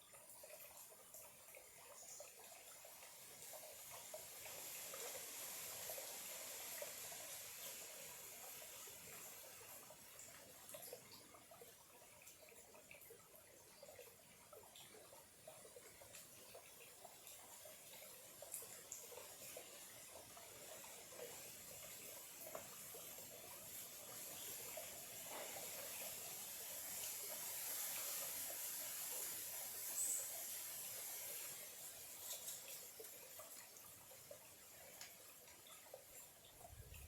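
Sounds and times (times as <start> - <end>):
stream trickling and burbling: 0.0 - 37.0.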